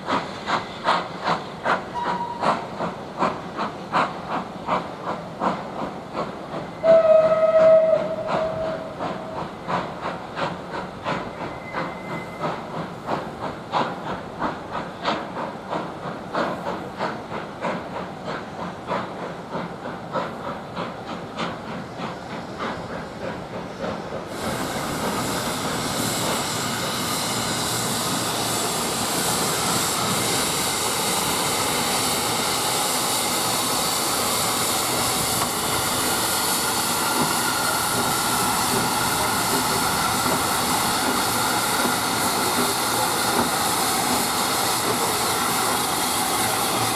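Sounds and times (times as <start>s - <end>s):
loud hiss of steam: 0.0s - 46.9s
steam locomotive whistle: 1.9s - 2.7s, 6.7s - 9.5s, 11.4s - 12.5s, 35.2s - 46.9s.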